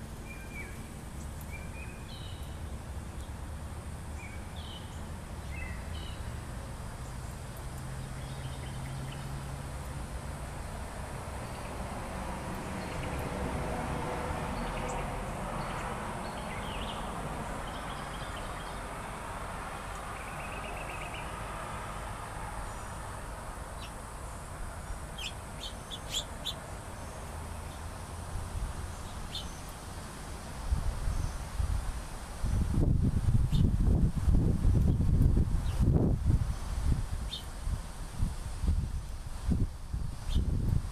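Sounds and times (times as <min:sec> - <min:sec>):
small birds chirping: 0:00.1 - 0:03.4, 0:04.1 - 0:06.4, 0:07.0 - 0:09.5, 0:11.4 - 0:11.9, 0:12.5 - 0:13.4, 0:14.5 - 0:18.9, 0:19.9 - 0:21.4, 0:23.8 - 0:27.9, 0:28.8 - 0:29.9, 0:33.5 - 0:33.8, 0:37.2 - 0:37.5, 0:40.2 - 0:40.6.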